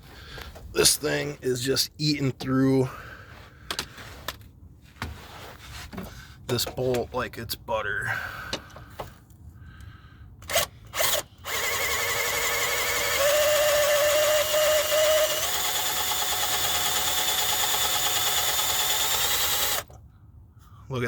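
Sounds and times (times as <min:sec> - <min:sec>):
power drill whining: 0:10.4 - 0:20.0.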